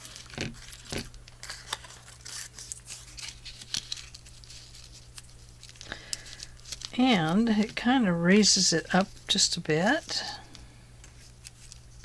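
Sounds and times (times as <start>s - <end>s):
paper rustling and crinkling: 0.0s - 12.0s.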